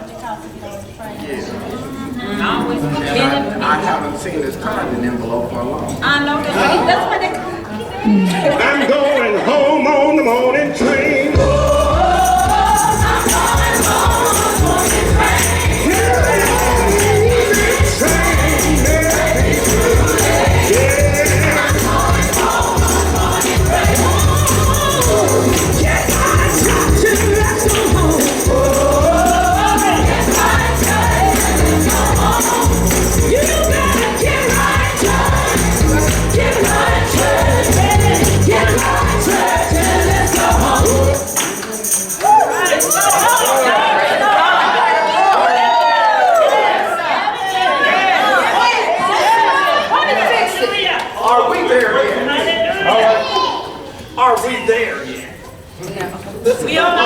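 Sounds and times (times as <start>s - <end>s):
choir singing gospel: 1.4s - 55.5s
bass beat: 11.4s - 41.2s
tambourine shaking: 11.4s - 44.1s.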